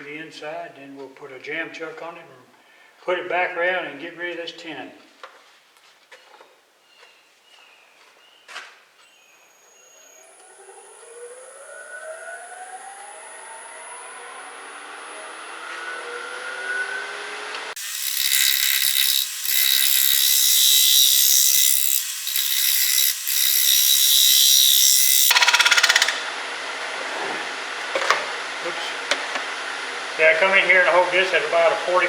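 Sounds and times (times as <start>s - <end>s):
wood lathe whine: 10.1s - 30.2s
tool scraping shaving wood: 17.8s - 26.2s.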